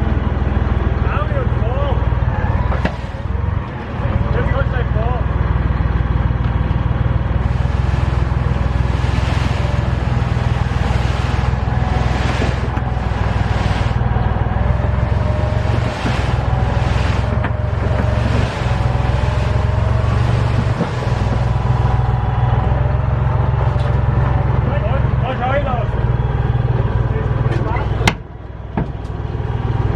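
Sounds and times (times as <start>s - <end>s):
engine rumbling steadily: 0.0s - 29.9s
hiss: 7.4s - 14.0s, 15.0s - 21.8s.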